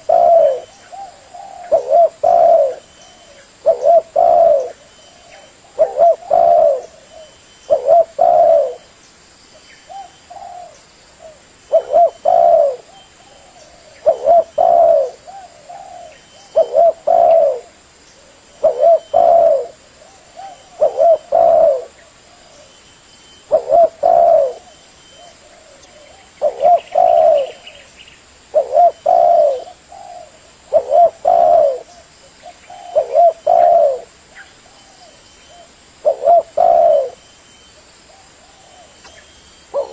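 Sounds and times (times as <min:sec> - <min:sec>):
dove cooing: 0:00.0 - 0:08.9, 0:09.9 - 0:22.8, 0:23.4 - 0:27.9, 0:28.5 - 0:37.2, 0:38.1 - 0:39.9.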